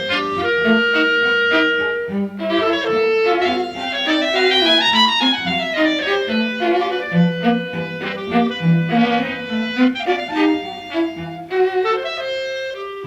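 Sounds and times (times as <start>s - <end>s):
small ensemble with bowed strings: 0.0s - 13.0s.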